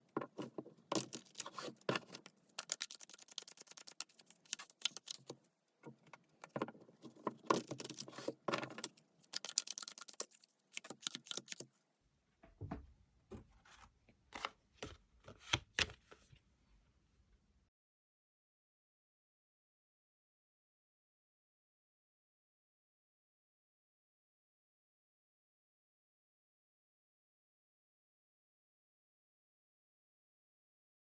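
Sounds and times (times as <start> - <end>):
cards being shuffled: 0.9 - 5.4.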